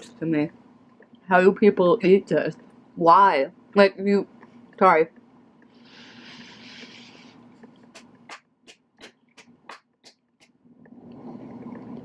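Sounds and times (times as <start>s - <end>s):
hissing breath: 5.8s - 7.4s.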